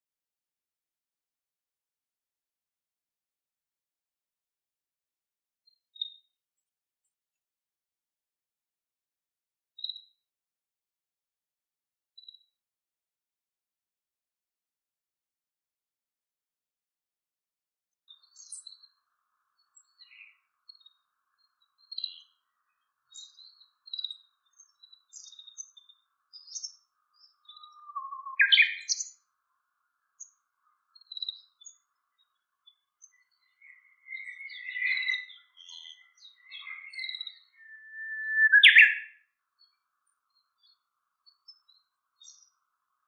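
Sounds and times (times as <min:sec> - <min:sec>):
songbirds chirping: 0:05.6 - 0:06.7, 0:12.2 - 0:12.5, 0:18.1 - 0:43.0.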